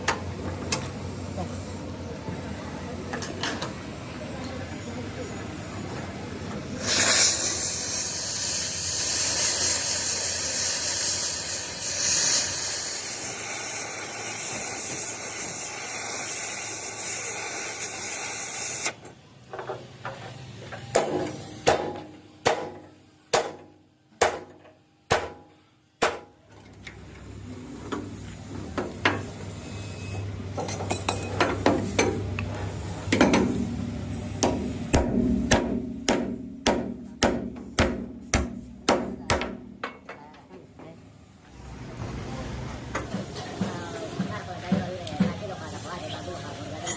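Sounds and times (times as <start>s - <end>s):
loud steady hiss: 6.6s - 19.1s.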